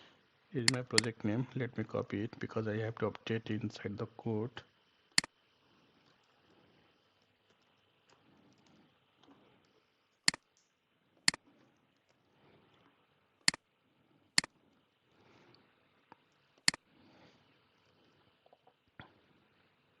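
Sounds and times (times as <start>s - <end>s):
computer mouse clicking: 0.6s - 1.1s, 10.3s - 10.6s.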